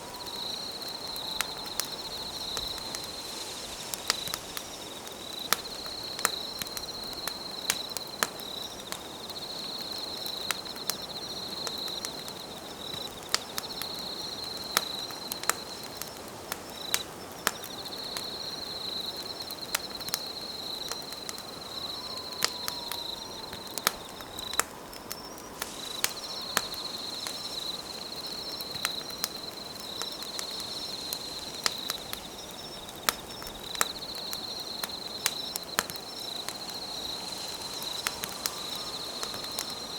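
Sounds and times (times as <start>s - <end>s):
campfire crackling and popping: 0.0s - 39.9s
insect trilling: 20.4s - 39.9s.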